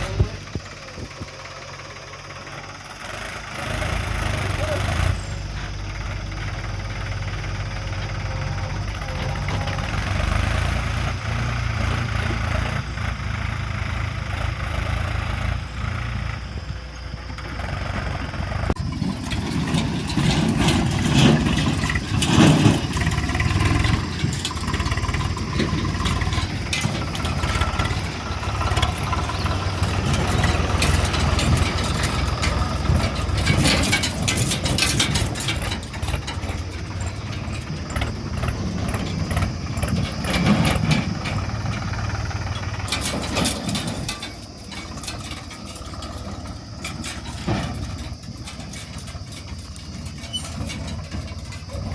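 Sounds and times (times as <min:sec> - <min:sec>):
diesel engines running: 0:00.0 - 0:51.9
bursts of clattering: 0:17.6 - 0:51.9.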